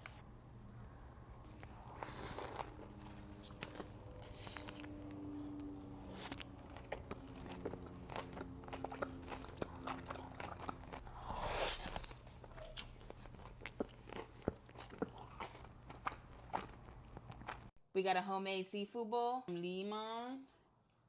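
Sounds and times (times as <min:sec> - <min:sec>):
chewing crispy fried food: 0:01.4 - 0:17.7.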